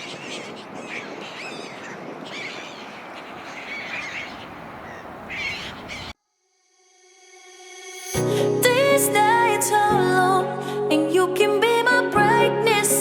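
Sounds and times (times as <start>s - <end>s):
gulls calling: 0.0s - 6.2s.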